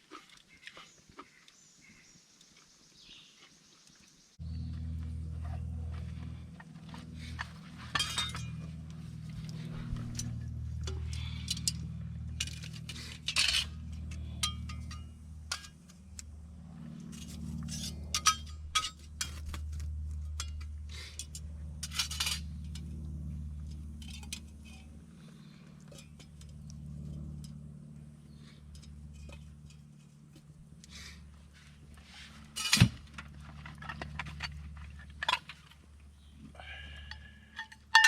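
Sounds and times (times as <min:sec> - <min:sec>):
steady low rumble: 0:04.4 - 0:36.2
camp cookware clinking: 0:07.3 - 0:16.2, 0:17.1 - 0:23.0, 0:23.7 - 0:27.7, 0:32.4 - 0:38.0.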